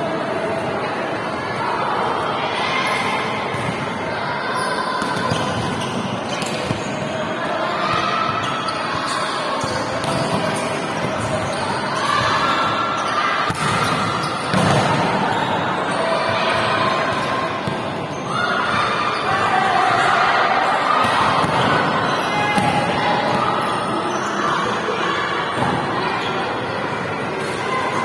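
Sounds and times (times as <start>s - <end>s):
volleyball striking and bouncing: 13.5s - 15.3s, 22.6s - 22.9s.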